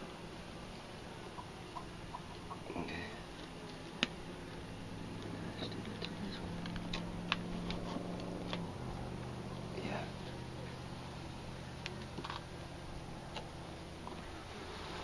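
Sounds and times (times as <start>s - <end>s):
hive frames clicking: 5.2s - 8.7s.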